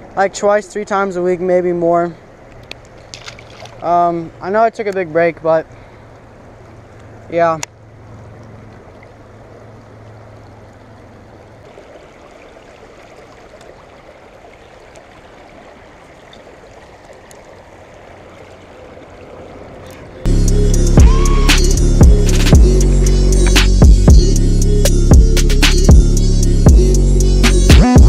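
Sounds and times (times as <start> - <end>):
river water flowing: 0.0 - 28.0
loud music: 20.3 - 28.0.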